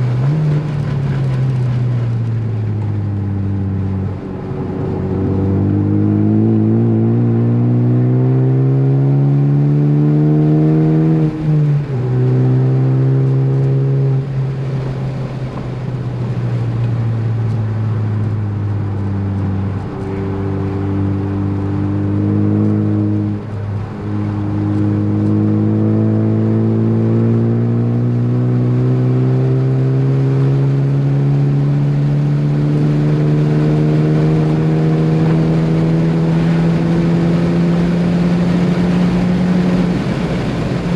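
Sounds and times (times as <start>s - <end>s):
car engine at full throttle: 0.0s - 40.9s.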